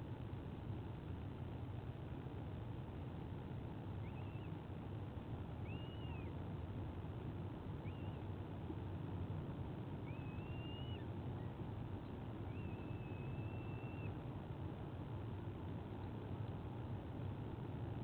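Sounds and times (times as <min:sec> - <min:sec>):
low background rumble: 0:00.0 - 0:18.0
bird chick whistled begging calls: 0:04.0 - 0:04.5, 0:05.6 - 0:06.3, 0:07.8 - 0:08.2, 0:10.0 - 0:11.6, 0:12.4 - 0:14.2.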